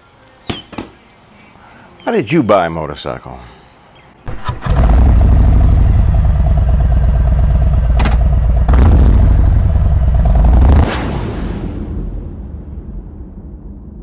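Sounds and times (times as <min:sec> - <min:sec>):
motorcycle engine running: 0:04.3 - 0:10.9.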